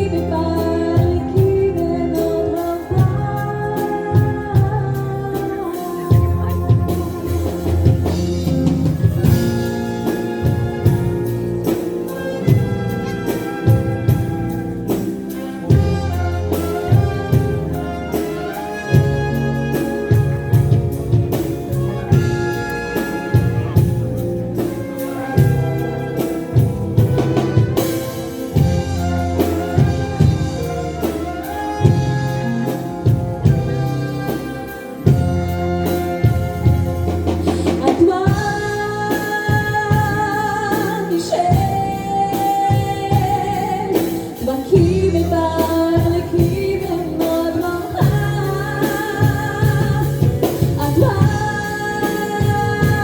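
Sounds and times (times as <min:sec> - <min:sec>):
person singing: 0:00.0 - 0:11.1
brass band playing: 0:00.0 - 0:53.0.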